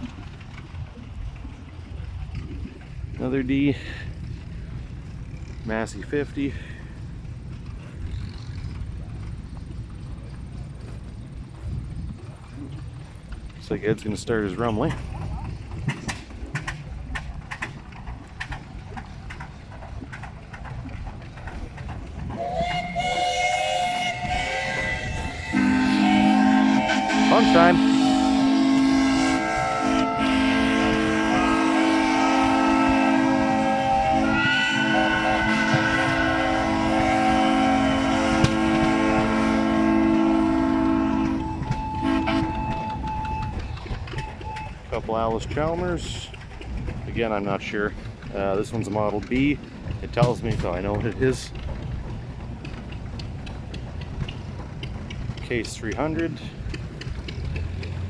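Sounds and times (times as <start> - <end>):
deep loud steam whistle: 22.3 - 44.8
high steam whistle: 22.3 - 44.8
single-tone whistle: 41.3 - 44.8
scattered clicks: 48.2 - 58.0.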